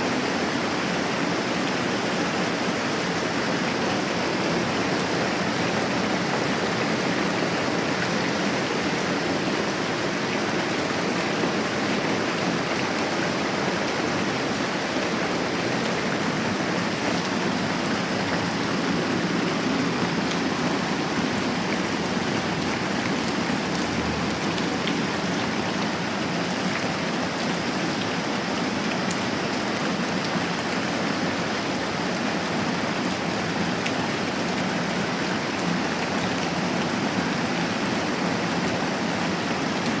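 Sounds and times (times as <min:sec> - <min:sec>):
rain falling: 0:00.0 - 0:40.0.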